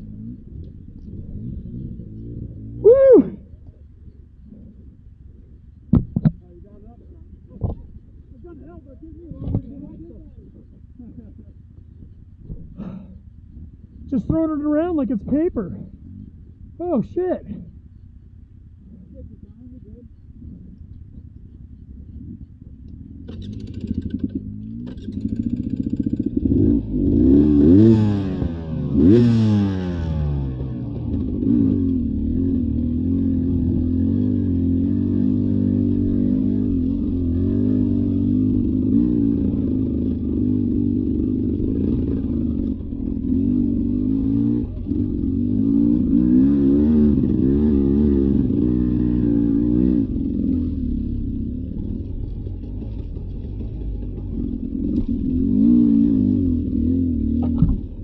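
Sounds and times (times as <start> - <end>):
dirt bike engine revving: 23.2 - 58.0.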